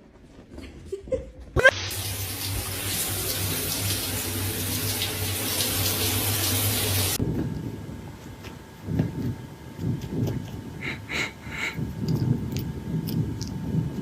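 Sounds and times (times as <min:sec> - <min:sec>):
water running from tap: 0:01.7 - 0:07.2.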